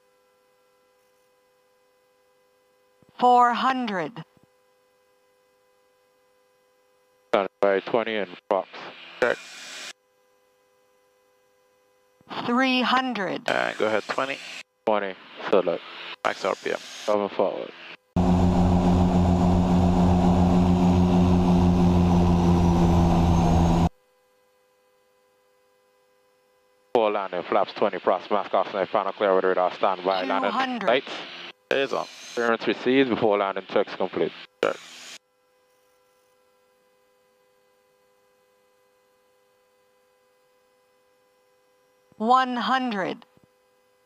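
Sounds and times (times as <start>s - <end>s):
turboprop engines droning: 17.9s - 23.9s.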